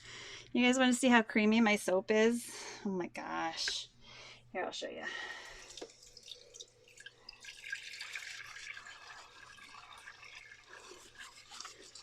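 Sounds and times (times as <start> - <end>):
wet squishing of soap: 8.5 - 12.0.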